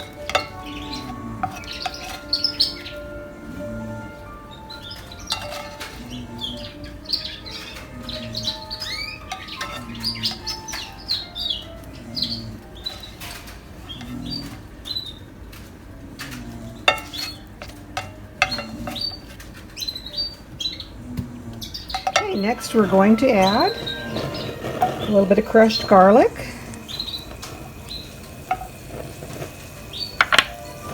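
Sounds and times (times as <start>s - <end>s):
small bird chirping: 0.0s - 3.1s, 4.5s - 13.2s, 18.6s - 21.0s, 26.8s - 28.2s, 29.9s - 30.2s.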